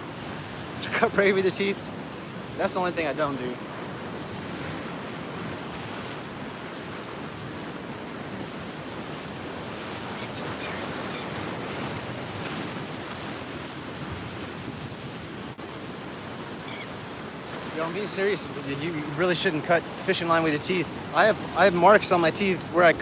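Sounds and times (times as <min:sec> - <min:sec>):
ocean surf washing in: 0:00.0 - 0:23.0
wind on microphone: 0:03.5 - 0:17.8.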